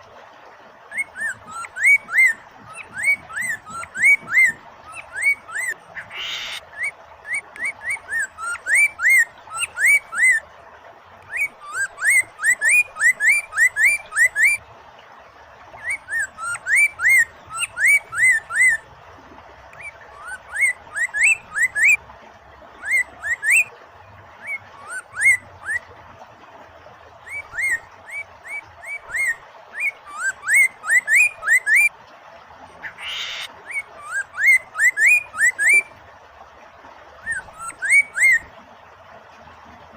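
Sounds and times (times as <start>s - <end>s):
flowing water hiss: 0.0s - 39.9s
bird whistling rising notes: 0.9s - 10.4s, 11.3s - 14.6s, 15.8s - 18.8s, 19.8s - 22.0s, 22.8s - 23.7s, 24.4s - 25.8s, 27.3s - 31.9s, 32.9s - 35.9s, 37.2s - 38.5s.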